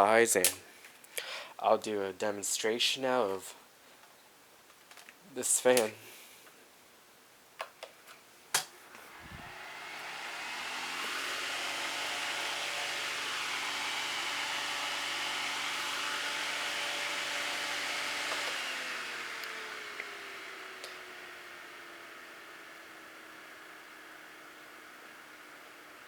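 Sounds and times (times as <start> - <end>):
desk fan motor humming: 8.8 - 26.0.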